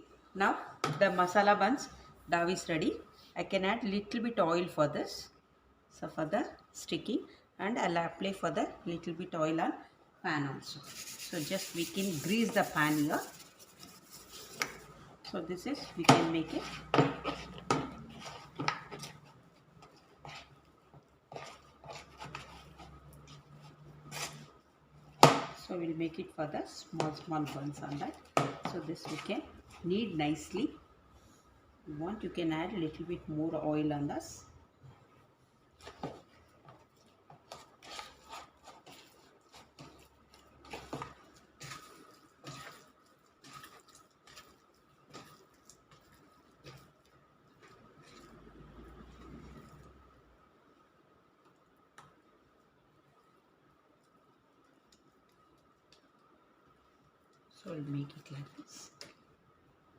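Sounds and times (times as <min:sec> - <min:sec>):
hands working bread dough: 0:10.3 - 0:50.8.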